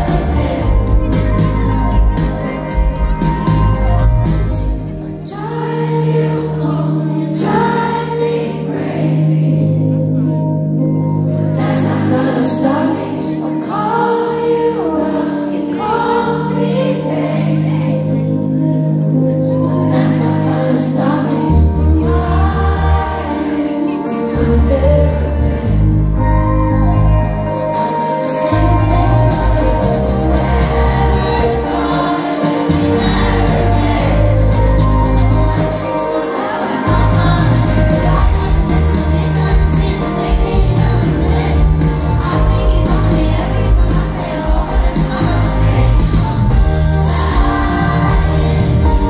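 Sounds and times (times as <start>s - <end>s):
woman singing: 0.0s - 2.5s, 4.5s - 10.3s, 11.2s - 49.0s
sustained bass notes: 0.0s - 5.2s, 21.5s - 36.1s, 36.8s - 49.0s
band playing: 0.0s - 6.6s, 15.0s - 49.0s.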